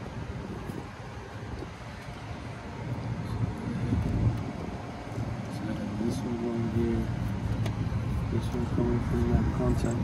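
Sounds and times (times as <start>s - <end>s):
wind buffeting microphone: 0.0s - 5.6s.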